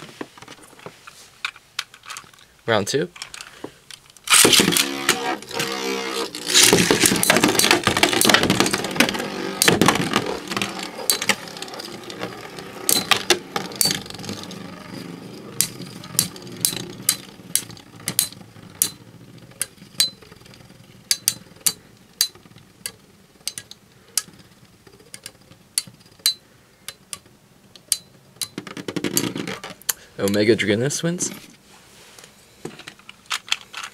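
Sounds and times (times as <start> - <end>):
spinning tops whirring and grinding: 4.2 - 26.4.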